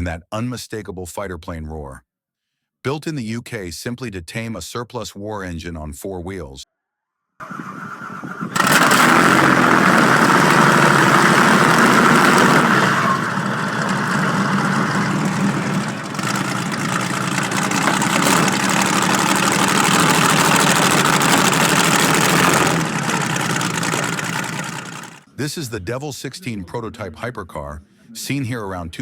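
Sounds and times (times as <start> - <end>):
aircraft engine starting and running: 7.4 - 25.2.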